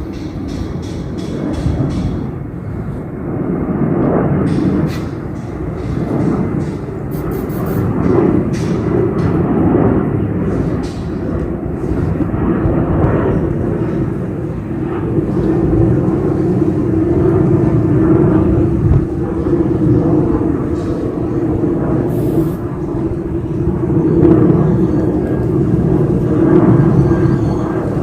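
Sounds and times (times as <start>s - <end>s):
jet airliner climbing overhead: 0.0s - 28.0s
humming tone: 7.0s - 8.4s.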